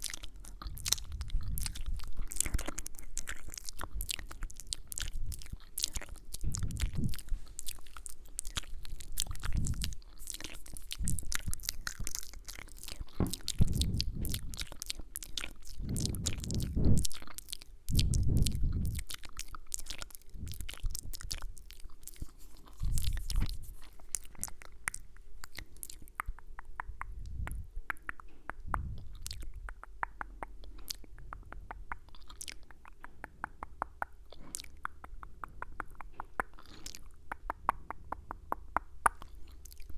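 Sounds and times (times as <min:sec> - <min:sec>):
wet mouth clicks: 0:00.0 - 0:39.9
low thuds: 0:13.0 - 0:14.7, 0:15.8 - 0:17.2.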